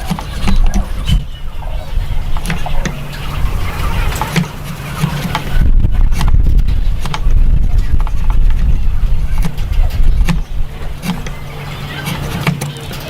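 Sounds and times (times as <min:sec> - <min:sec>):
low rumble: 0:00.0 - 0:11.6
tools tapping on wood: 0:07.0 - 0:07.3, 0:12.1 - 0:13.0.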